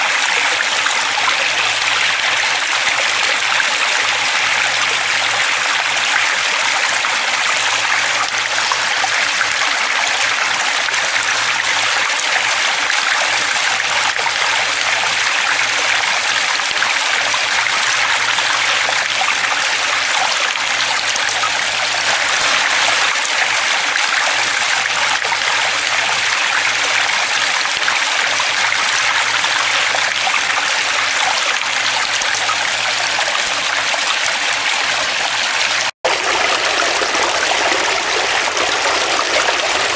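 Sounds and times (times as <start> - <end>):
stream water running: 0.0 - 39.9.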